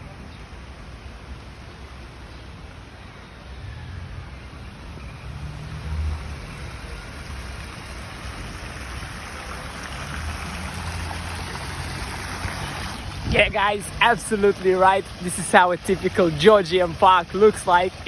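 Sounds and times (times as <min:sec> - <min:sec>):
fountain water splashing: 0:04.4 - 0:18.0.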